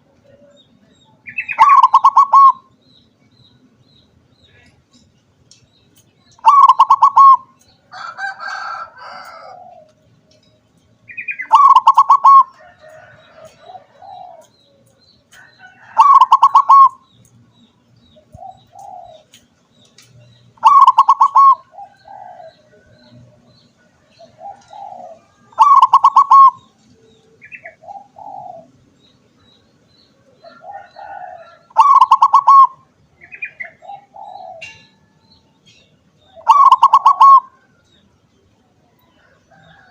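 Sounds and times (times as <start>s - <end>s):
dove cooing: 1.2s - 2.7s, 6.4s - 10.1s, 11.1s - 14.6s, 15.7s - 17.0s, 18.3s - 19.4s, 20.6s - 23.4s, 24.0s - 28.8s, 30.2s - 35.1s, 36.3s - 37.8s.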